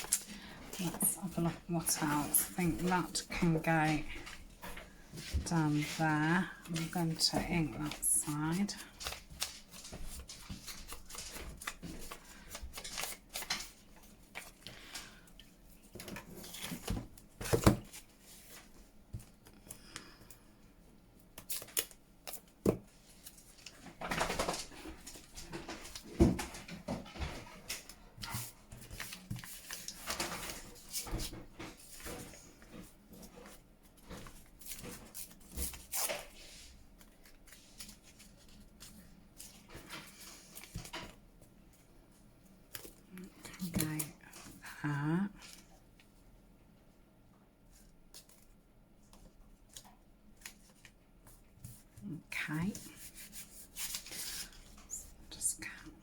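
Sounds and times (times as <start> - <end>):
paper rustling and tapping: 0.0 - 15.2, 15.9 - 18.0, 21.4 - 36.4.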